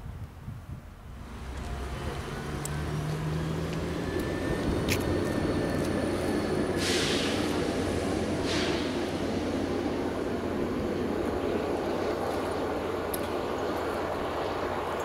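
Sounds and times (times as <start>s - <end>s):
railbus engine and wheel noise: 0.0s - 15.0s
short air hiss: 6.8s - 7.6s, 8.3s - 9.2s.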